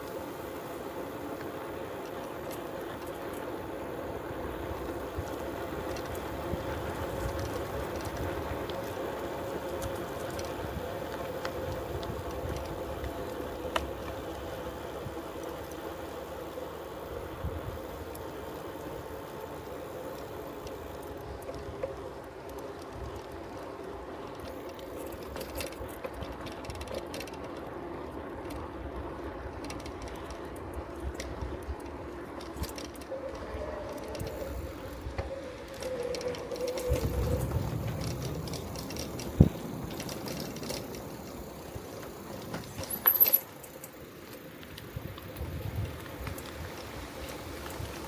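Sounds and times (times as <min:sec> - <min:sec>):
bicycle tyres humming on road: 0:00.0 - 0:48.0.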